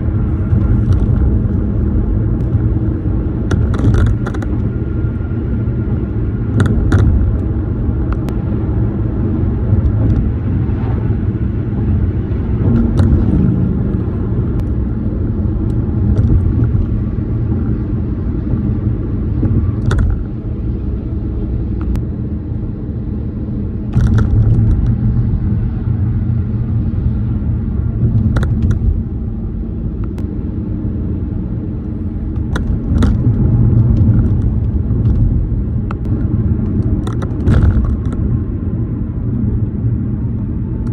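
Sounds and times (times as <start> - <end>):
tyre and road rumble: 0.0 - 40.9.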